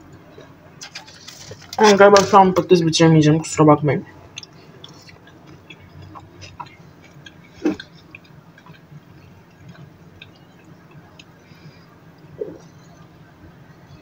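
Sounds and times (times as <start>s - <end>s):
soft chewing with mouth clicks: 4.2s - 13.1s.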